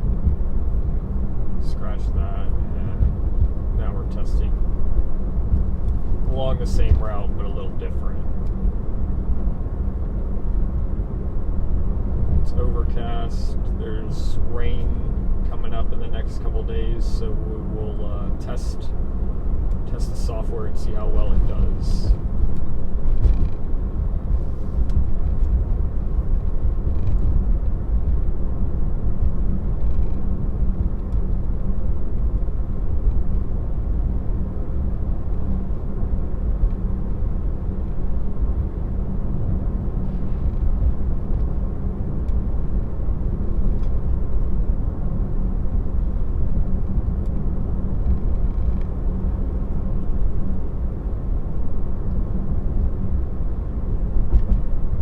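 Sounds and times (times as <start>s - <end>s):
faint hum: 0.0s - 55.0s
road and tyre noise in car: 0.0s - 55.0s.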